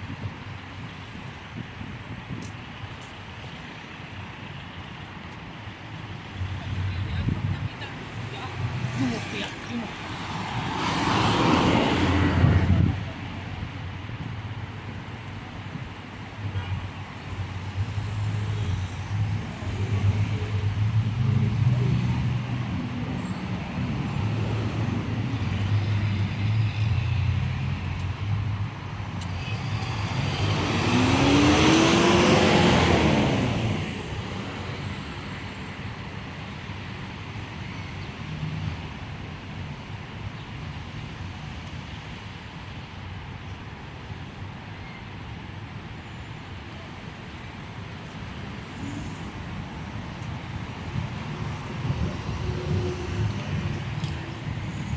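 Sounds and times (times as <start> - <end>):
traffic hum: 0.0 - 54.9
engines running close by: 17.5 - 36.1, 47.5 - 54.9
vehicle passing close: 29.3 - 34.8.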